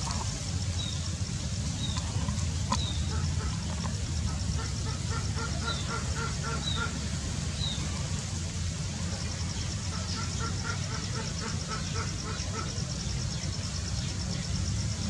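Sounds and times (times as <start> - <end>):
birds calling: 0.0 - 8.0
steady low rumble: 0.0 - 10.0.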